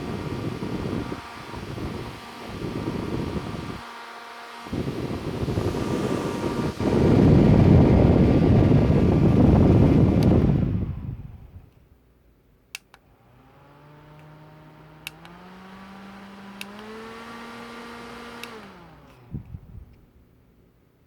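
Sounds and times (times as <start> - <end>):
fan air rushing: 0.0 - 11.8, 12.7 - 20.6
fan motor whine: 0.0 - 11.8, 12.9 - 20.2
control clicks: 12.7 - 13.1, 15.0 - 15.4, 16.6 - 17.0, 18.0 - 20.0.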